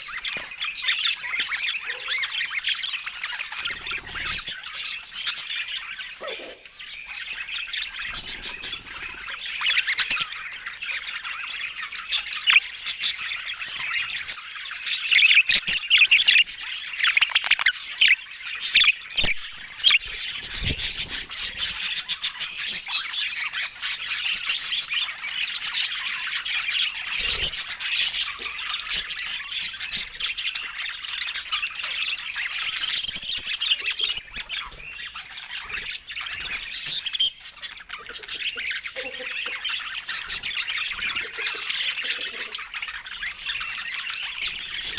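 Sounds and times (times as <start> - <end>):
budgerigars chattering: 0.0 - 44.9.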